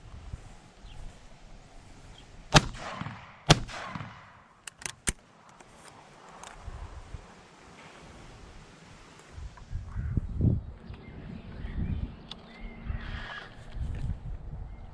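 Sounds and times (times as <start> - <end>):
shotgun shots echoing: 2.5 - 4.6.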